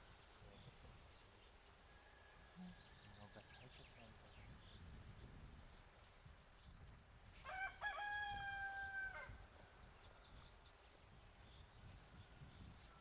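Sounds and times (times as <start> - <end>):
rooster crowing: 7.5 - 9.3.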